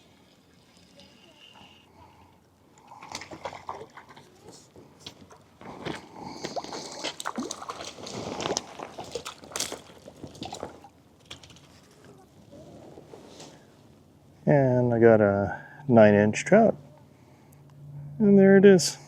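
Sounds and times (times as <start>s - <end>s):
fish splashing in water: 2.8s - 11.0s.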